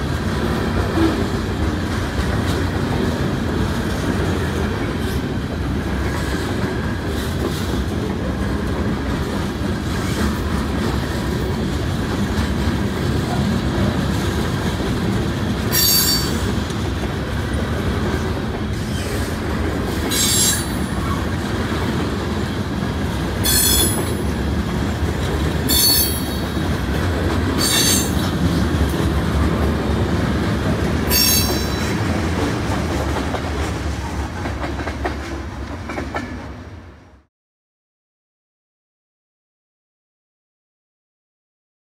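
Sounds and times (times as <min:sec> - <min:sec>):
high-pitched wheel squeals: 0:15.7 - 0:16.4, 0:31.1 - 0:31.8.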